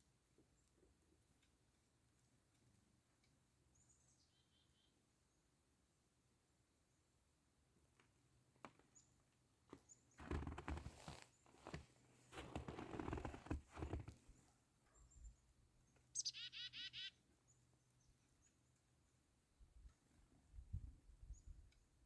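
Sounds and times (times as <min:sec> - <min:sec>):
chickadee call: 0:16.2 - 0:17.2.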